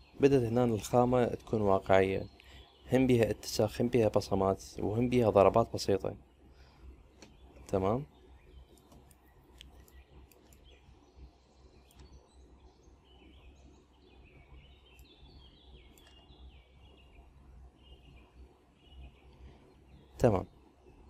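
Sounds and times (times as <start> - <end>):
distant birds chirping: 0.0 - 21.0
faint clicks: 8.7 - 10.7, 11.8 - 12.2, 15.9 - 16.2.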